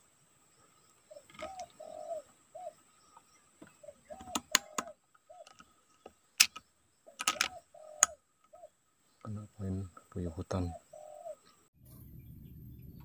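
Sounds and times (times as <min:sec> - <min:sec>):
sharp clicks: 0:04.1 - 0:08.6.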